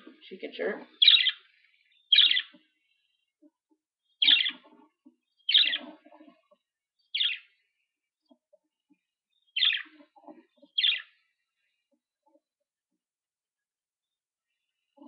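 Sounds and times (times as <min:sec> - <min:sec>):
budgerigar chirps: 0:01.0 - 0:01.4, 0:02.1 - 0:02.6, 0:04.2 - 0:04.7, 0:05.5 - 0:06.3, 0:07.1 - 0:07.5, 0:09.6 - 0:11.2.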